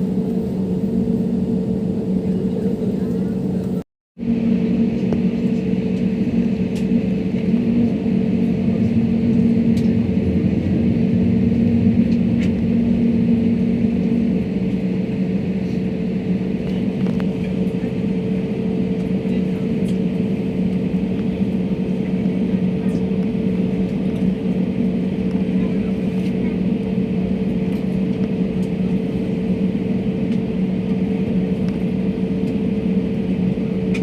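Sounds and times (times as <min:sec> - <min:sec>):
airliner cabin engine drone: 0:00.0 - 0:34.0
constant low hum: 0:00.0 - 0:34.0.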